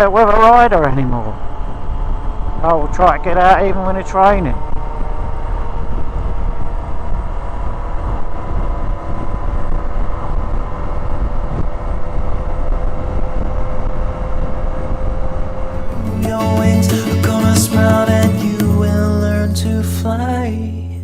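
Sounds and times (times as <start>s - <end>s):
wind rush on microphone: 0.1s - 15.9s.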